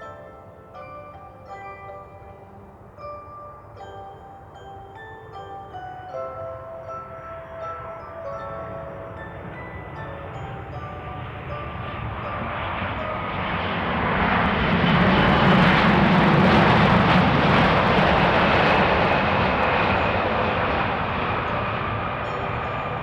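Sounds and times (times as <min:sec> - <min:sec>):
jet engines of landing airliner: 0:08.7 - 0:23.0.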